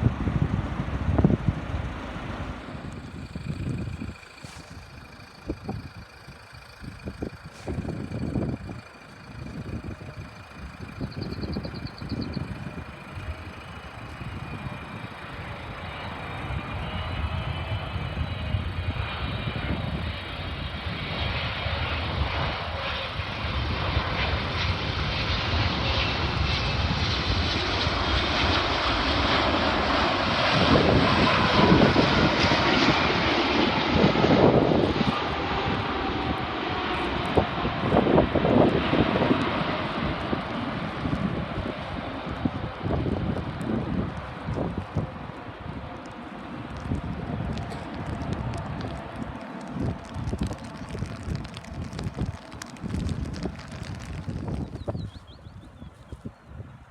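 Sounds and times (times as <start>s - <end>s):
faint high whine: 0.0s - 27.6s
airliner engines roaring: 0.0s - 56.9s
wind buffeting microphone: 0.0s - 56.9s.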